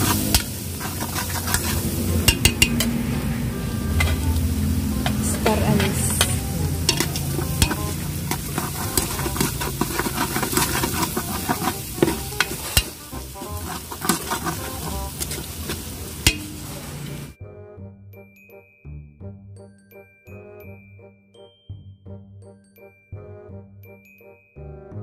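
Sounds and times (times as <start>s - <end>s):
metal spatula scraping a pot: 0.0s - 3.1s, 5.0s - 17.3s
oil sizzling in a pot: 0.0s - 17.4s
light tinkling music: 2.3s - 9.4s, 18.1s - 25.0s.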